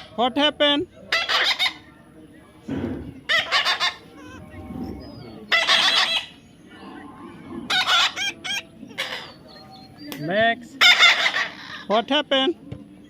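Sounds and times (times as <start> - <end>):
parrot squawking: 1.1 - 1.9, 3.3 - 6.4, 7.3 - 10.0, 10.8 - 11.9.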